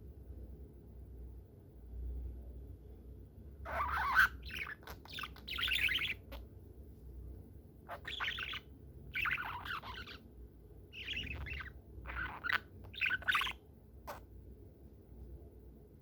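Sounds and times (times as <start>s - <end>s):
budgerigar chirping and chattering: 3.7s - 6.5s, 7.9s - 10.3s, 10.9s - 14.2s.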